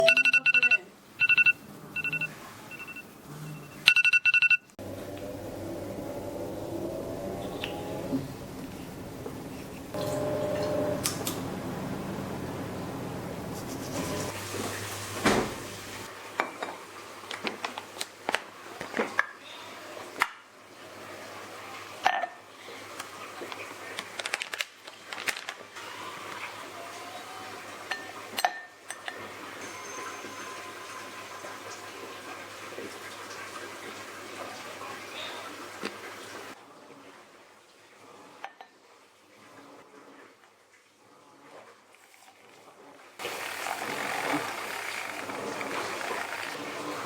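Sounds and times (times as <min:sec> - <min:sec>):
electronic telephone ringtone: 0:00.0 - 0:04.7
low hum: 0:04.8 - 0:15.0.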